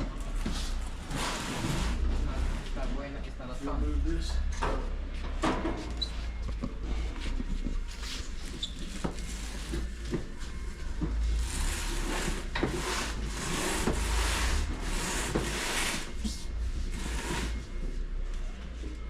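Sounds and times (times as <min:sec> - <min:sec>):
garage door scraping: 0:00.0 - 0:03.0, 0:08.0 - 0:18.1.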